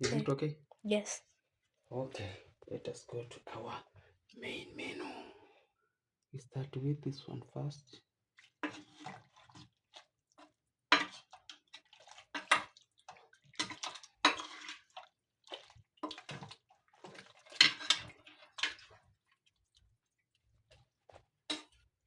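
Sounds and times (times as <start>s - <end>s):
cutlery clinking on plates: 17.5s - 18.8s.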